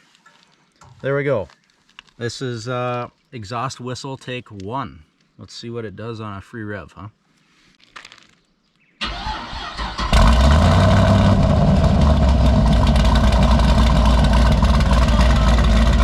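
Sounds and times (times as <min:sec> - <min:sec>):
starter motor cranking: 0:09.0 - 0:16.0
car engine running: 0:10.1 - 0:16.0.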